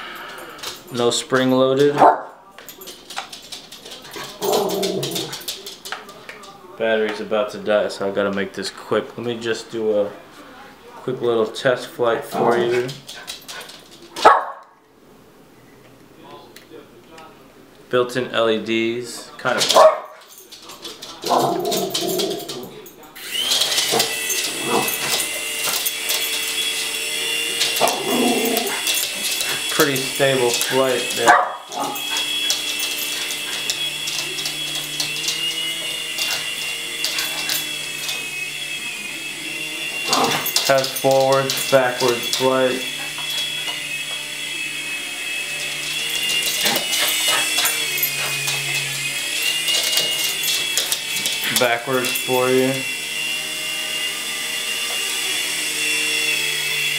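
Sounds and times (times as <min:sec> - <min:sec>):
toy helicopter motors whining: 0:02.7 - 0:06.5, 0:19.4 - 0:56.9.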